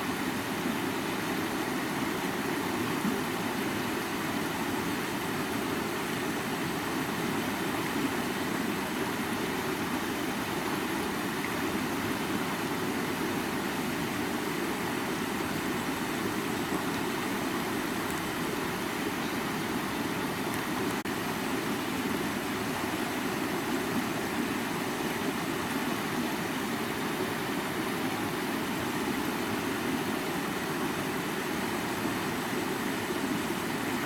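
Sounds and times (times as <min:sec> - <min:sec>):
river water flowing: 0:00.0 - 0:34.0.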